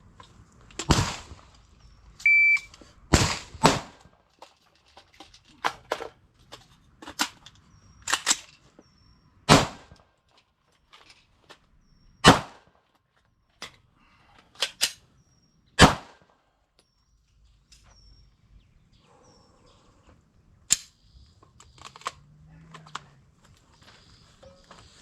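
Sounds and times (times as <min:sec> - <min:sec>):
rifle shots: 0:00.8 - 0:01.5, 0:03.1 - 0:04.1, 0:09.5 - 0:10.0, 0:12.2 - 0:12.7, 0:15.8 - 0:16.3
magazine clicks and rattles: 0:04.3 - 0:08.6, 0:13.6 - 0:15.0, 0:20.7 - 0:23.6.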